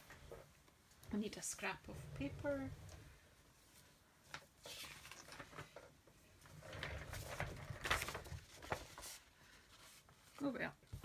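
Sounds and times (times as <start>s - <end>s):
paper rustling: 4.3s - 5.9s, 6.7s - 11.0s.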